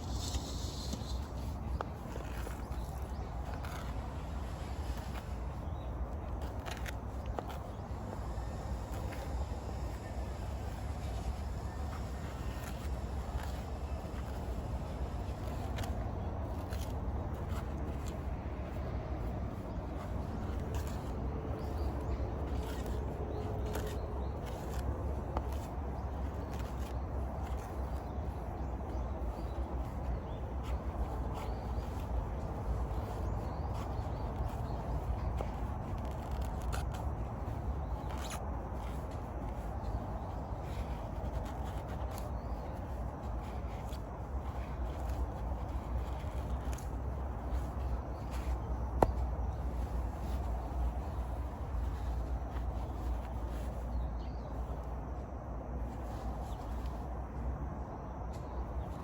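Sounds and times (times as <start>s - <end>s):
scraping strokes: 0.0s - 54.8s
soft hiss: 0.0s - 55.0s
steady low rumble: 0.0s - 59.0s.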